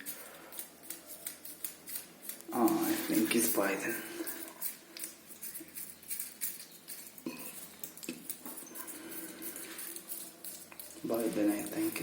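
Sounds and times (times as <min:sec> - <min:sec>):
kitten chewing: 0:03.9 - 0:12.0.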